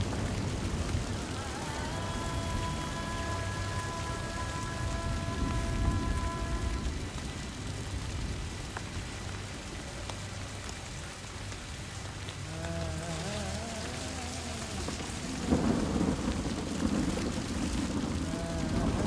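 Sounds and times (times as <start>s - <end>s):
low rumble: 0.0s - 19.0s
steady rain falling: 0.0s - 19.0s
held chord of tones: 1.2s - 7.5s.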